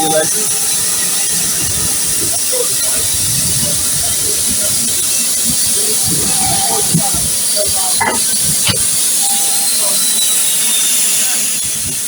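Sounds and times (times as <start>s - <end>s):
steam locomotive hissing: 0.0s - 12.0s
sharp metallic knocks: 8.0s - 8.9s.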